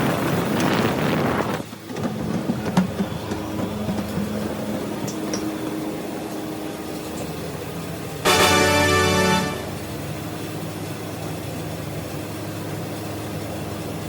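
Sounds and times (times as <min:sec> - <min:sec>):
mechanical hum: 0:00.2 - 0:14.0
music: 0:08.3 - 0:09.8.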